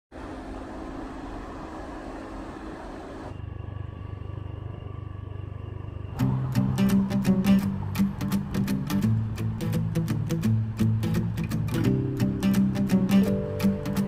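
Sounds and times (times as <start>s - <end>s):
steady low hum: 0.1s - 14.0s
strummed guitar music: 6.2s - 14.0s.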